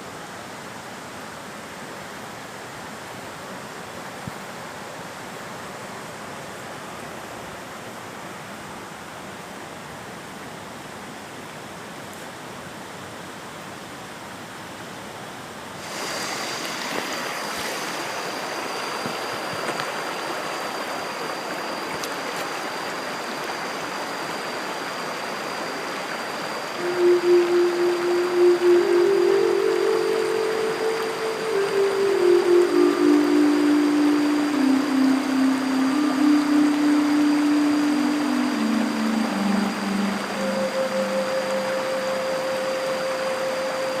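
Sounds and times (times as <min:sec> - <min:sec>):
stream water running: 0:00.0 - 0:44.0
steady high whine: 0:15.8 - 0:44.0.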